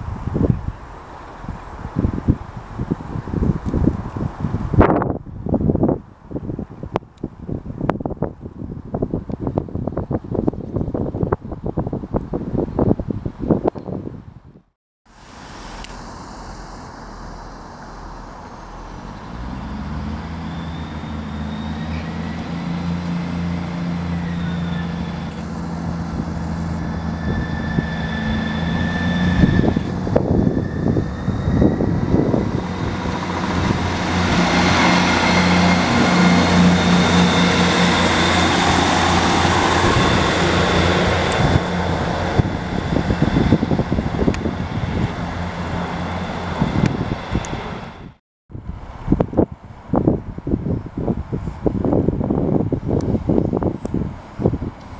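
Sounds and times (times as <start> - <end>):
train passing: 15.1 - 51.3.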